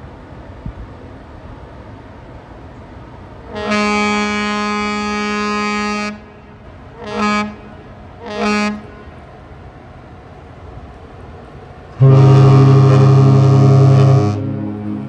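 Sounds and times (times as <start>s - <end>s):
ship whistle blasts: 3.5s - 6.3s, 7.0s - 9.1s, 12.0s - 15.0s.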